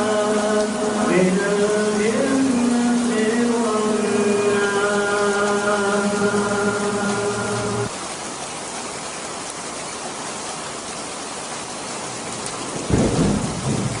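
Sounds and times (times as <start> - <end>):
person chanting: 0.0 - 7.9
steady rain: 0.0 - 14.0
thunder rumbling: 12.7 - 14.0.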